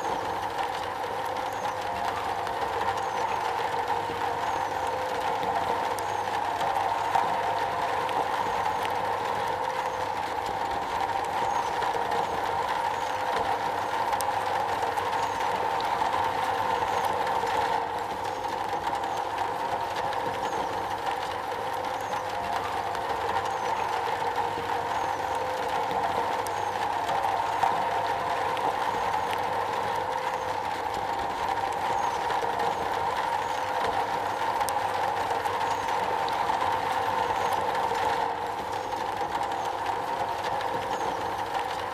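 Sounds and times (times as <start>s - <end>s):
rain on a metal roof: 0.0s - 41.9s.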